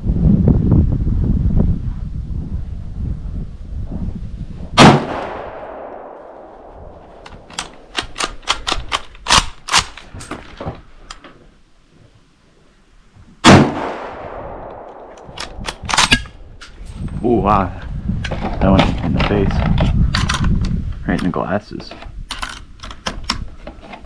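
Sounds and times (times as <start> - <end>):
rifle shots echoing: 4.8 - 10.0, 13.4 - 16.2
sharp metallic clicks: 7.2 - 10.1.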